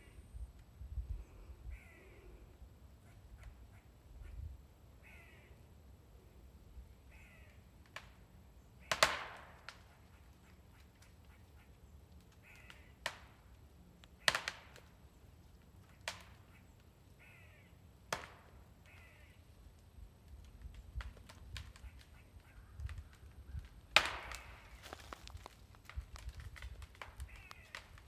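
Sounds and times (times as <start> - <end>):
crow cawing: 1.6 - 2.4, 5.0 - 5.6, 7.1 - 7.6, 12.4 - 13.0, 15.9 - 17.8, 18.8 - 19.4, 21.6 - 25.4, 27.1 - 28.0
tree wood cracking: 19.7 - 28.0.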